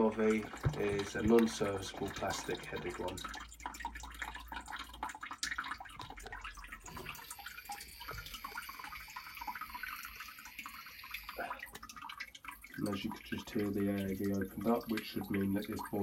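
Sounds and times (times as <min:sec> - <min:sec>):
water dripping and trickling: 0:00.0 - 0:16.0
air vent hissing and whistling: 0:07.4 - 0:11.6.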